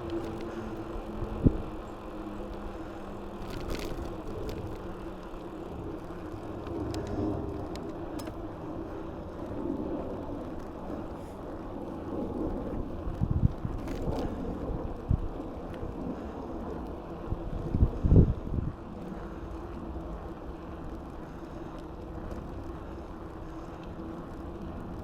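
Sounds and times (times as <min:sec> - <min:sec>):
light ticks from bike: 0:00.0 - 0:25.0
tyre and wind rush: 0:17.1 - 0:18.8.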